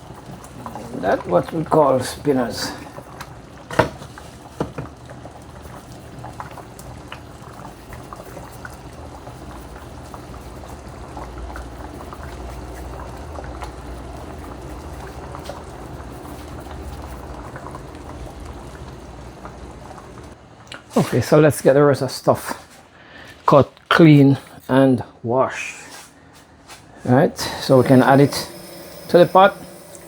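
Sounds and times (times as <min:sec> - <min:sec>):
soup boiling and bubbling: 0:00.0 - 0:20.6, 0:27.4 - 0:30.0.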